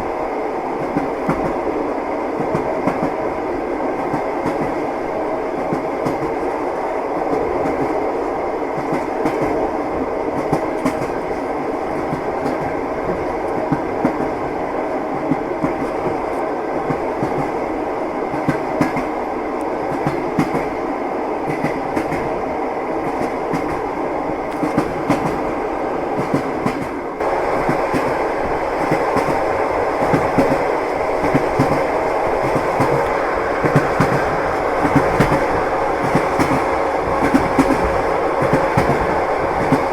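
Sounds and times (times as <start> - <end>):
train wheels clattering over rail joints: 28.8 - 39.9.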